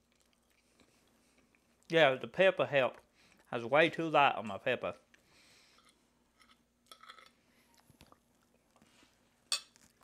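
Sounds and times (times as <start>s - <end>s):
faint chewing: 0.0s - 1.9s, 5.1s - 10.0s
faint steady hum: 0.0s - 10.0s.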